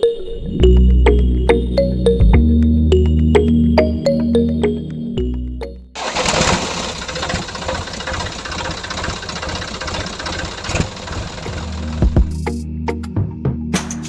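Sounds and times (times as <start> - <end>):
small engine running roughly: 6.0 - 12.4.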